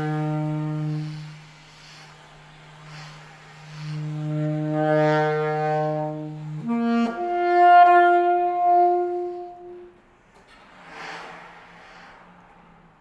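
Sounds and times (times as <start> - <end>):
saxophone holding long notes: 0.0 - 1.6, 4.0 - 10.0
low sustained note: 0.0 - 10.0.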